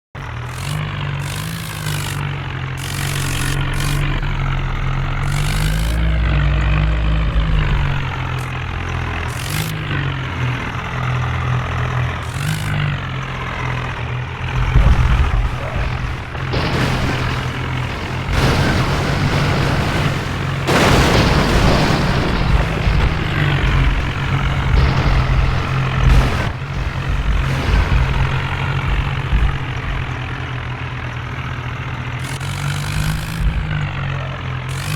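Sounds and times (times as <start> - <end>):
diesel tractor engines revving: 0.1 - 34.9.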